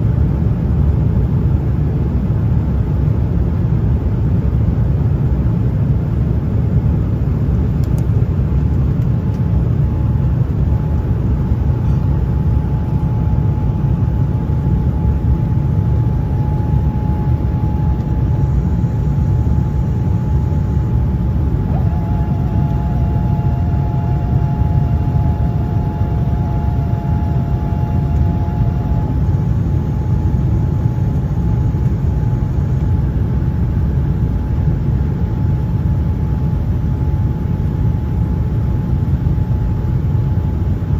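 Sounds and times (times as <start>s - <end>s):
airliner engines rumbling: 0.0s - 40.9s
faint steady hum: 2.7s - 40.9s
second hum: 7.8s - 34.6s.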